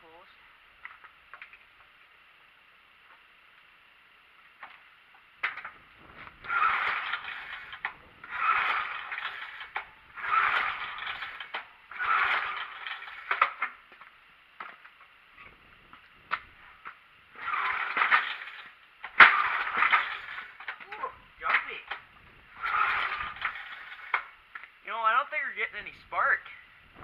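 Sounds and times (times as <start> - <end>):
small engine cranking: 5.6 - 13.8, 17.3 - 24.4.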